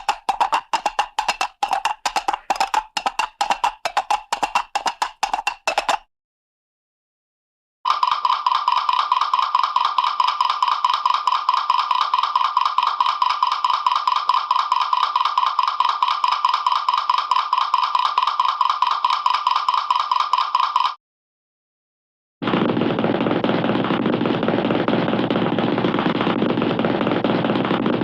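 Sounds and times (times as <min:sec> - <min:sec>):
rapid sharp pitched clicks: 0:00.0 - 0:06.1.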